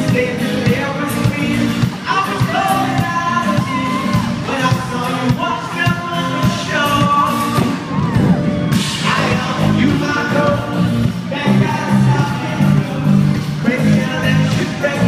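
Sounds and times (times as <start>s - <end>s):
live pop-rock band playing: 0.0s - 15.0s
male lead singer: 0.0s - 15.0s.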